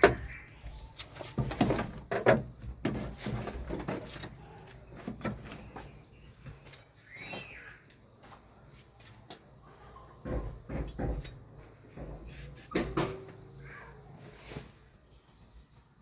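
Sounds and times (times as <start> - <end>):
tools clicking and knocking: 10.3 - 13.3.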